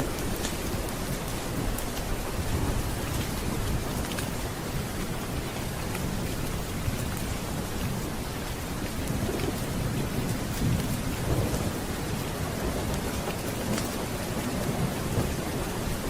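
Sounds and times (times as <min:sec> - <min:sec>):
heavy rain: 0:00.0 - 0:16.0
rolling thunder: 0:00.0 - 0:16.0.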